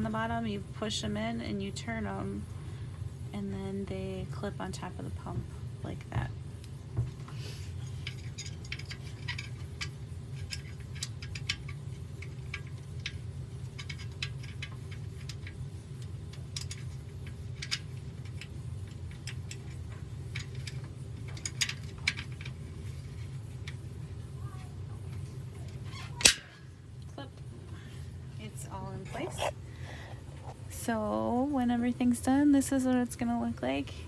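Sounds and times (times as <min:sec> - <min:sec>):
small plastic parts clicking: 0:08.0 - 0:23.8.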